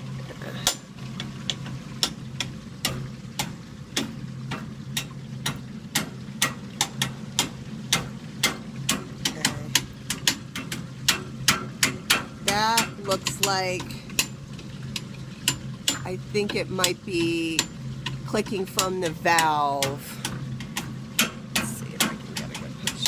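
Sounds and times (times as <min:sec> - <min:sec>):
steady low hum: 0:00.0 - 0:23.0
furnace clicking: 0:00.6 - 0:23.0.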